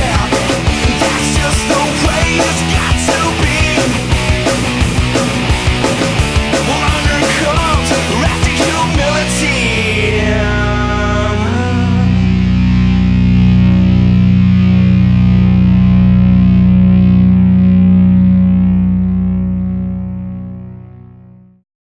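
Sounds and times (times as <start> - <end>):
distorted electric guitar chord: 0.0 - 21.6.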